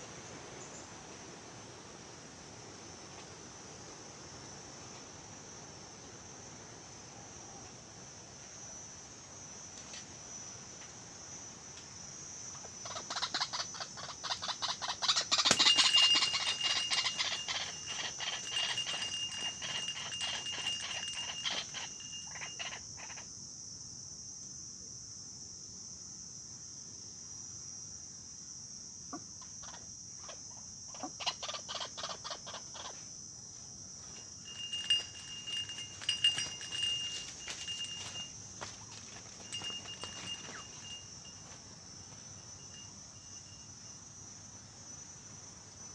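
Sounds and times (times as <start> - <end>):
crickets chirping: 0.0 - 45.9
bird calls in rapid pulses: 12.9 - 22.8.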